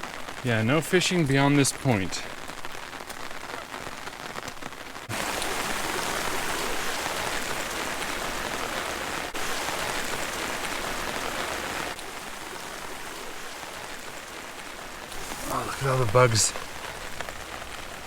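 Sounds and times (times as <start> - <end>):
rain pattering on umbrella: 0.0 - 18.0.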